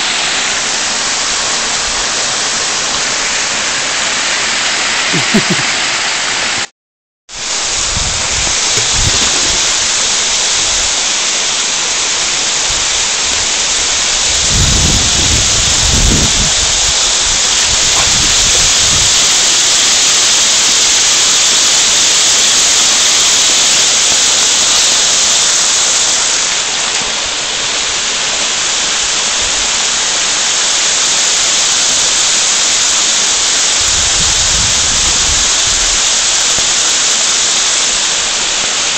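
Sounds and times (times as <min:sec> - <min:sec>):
waterfall rushing: 0:00.0 - 0:06.7, 0:07.4 - 0:38.9.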